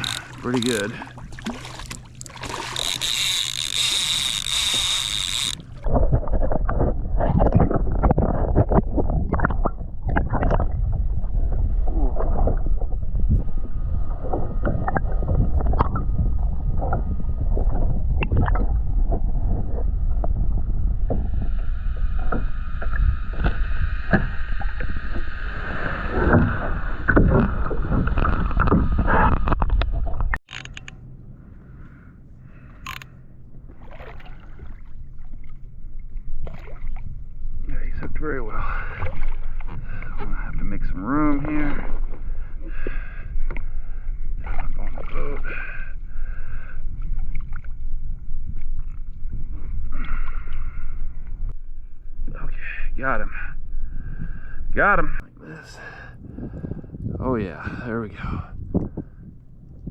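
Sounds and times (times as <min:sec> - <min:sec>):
water splashing against kayak hull: 0:00.0 - 0:30.5, 0:33.6 - 0:37.7, 0:38.6 - 0:51.6.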